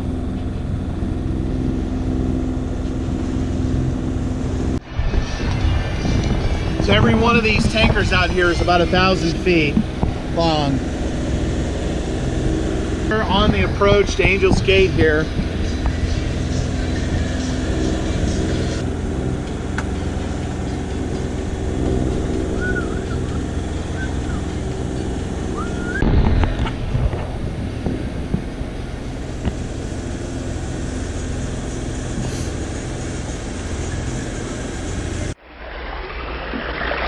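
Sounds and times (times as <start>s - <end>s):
boat engine running: 0.0s - 35.5s
wind and water noise: 0.0s - 37.0s
rush of water or wind: 35.4s - 37.0s.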